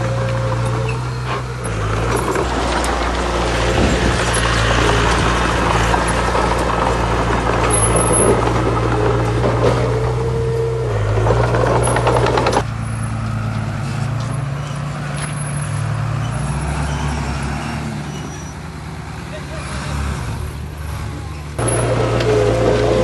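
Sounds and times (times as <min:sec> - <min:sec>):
loud rattling scraping: 0:00.0 - 0:18.6, 0:19.6 - 0:23.0
diesel earthmoving machinery running: 0:00.0 - 0:23.0.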